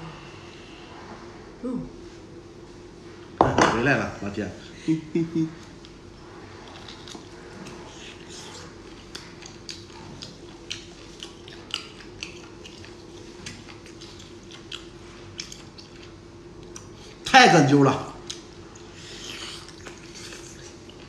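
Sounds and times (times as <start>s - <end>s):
steady low hum: 0.0s - 21.0s
person chewing with mouth clicks: 6.6s - 17.2s, 18.2s - 21.0s.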